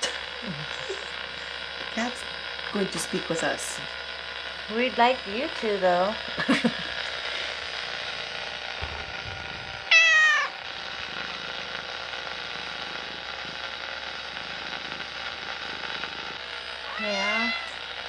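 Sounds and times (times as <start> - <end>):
steady hiss: 0.0 - 18.0
cat meowing: 9.9 - 10.6, 16.9 - 17.8.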